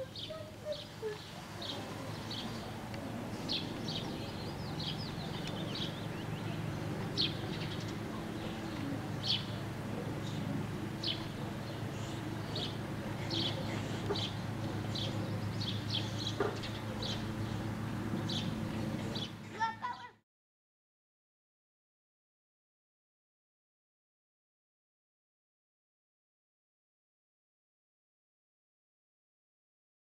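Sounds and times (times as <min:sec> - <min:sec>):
steady low rumble: 0:00.0 - 0:19.5
small birds chirping: 0:00.0 - 0:20.1.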